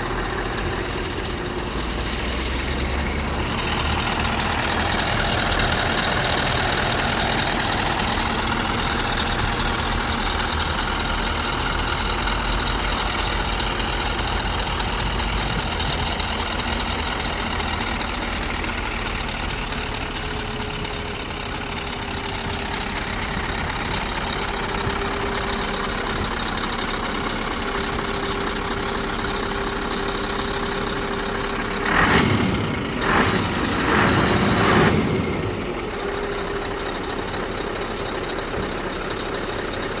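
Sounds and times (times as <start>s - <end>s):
diesel truck engine idling: 0.0s - 40.0s
loud engine bursts: 31.6s - 37.0s.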